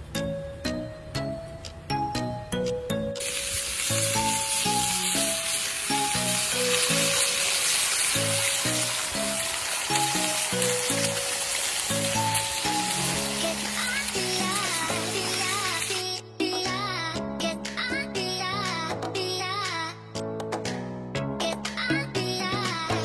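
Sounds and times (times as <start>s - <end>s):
background music melody: 0.0s - 23.0s
food sizzling on a griddle: 3.2s - 16.1s.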